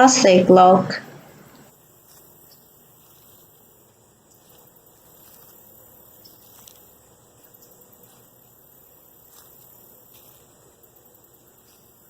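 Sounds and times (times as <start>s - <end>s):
faint background hiss: 0.0s - 12.0s
faint ticks: 1.3s - 12.0s.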